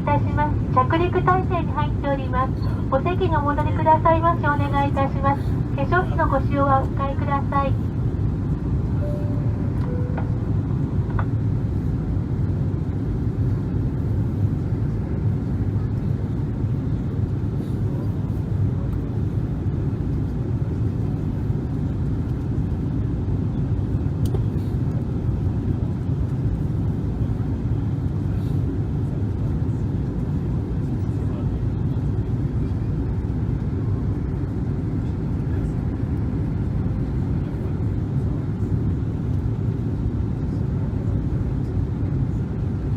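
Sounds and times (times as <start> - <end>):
airliner cabin engine rumble: 0.0 - 42.9
two-note falling tone: 9.0 - 10.5.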